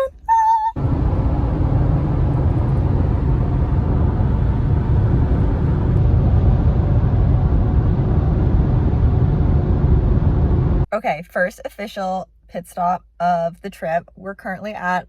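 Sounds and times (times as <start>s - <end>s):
road and wind noise: 0.8s - 10.9s.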